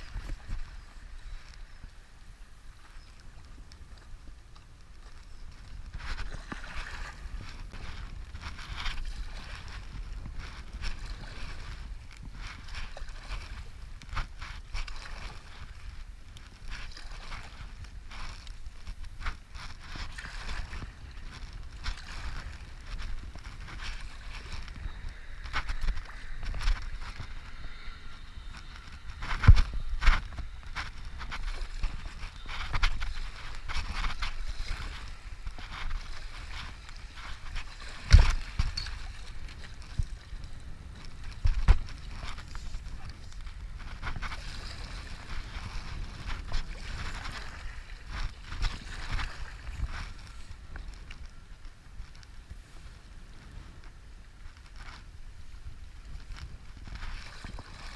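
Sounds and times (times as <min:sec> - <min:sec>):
paddle strokes: 0:00.0 - 0:57.9
wind rumble on microphone: 0:00.0 - 0:57.9
water splashing and rushing: 0:05.0 - 0:50.4.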